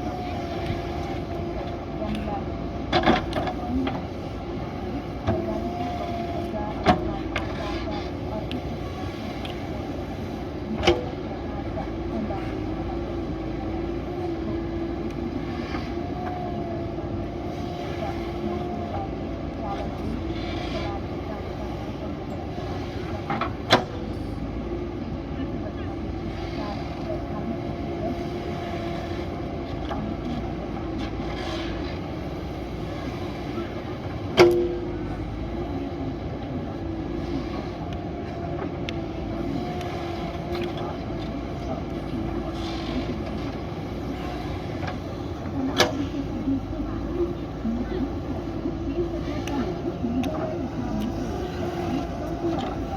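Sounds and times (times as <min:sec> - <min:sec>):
diesel engine running: 0:00.0 - 0:52.9
held engine whine: 0:32.0 - 0:52.9.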